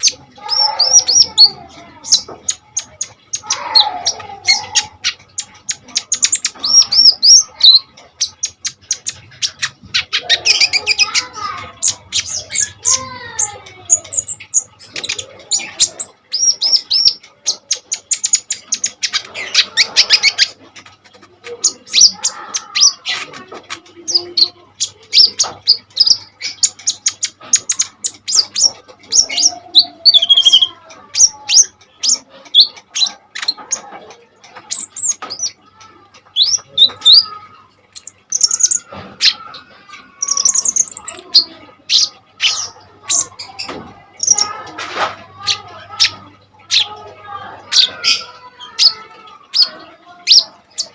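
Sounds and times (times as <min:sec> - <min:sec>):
bird singing high chirps: 0:24.1 - 0:33.9, 0:36.3 - 0:37.3, 0:37.9 - 0:44.6.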